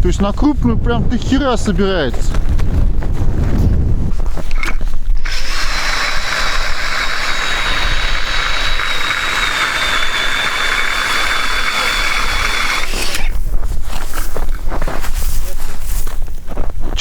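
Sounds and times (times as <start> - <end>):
ice auger motor whining: 4.5 - 13.4.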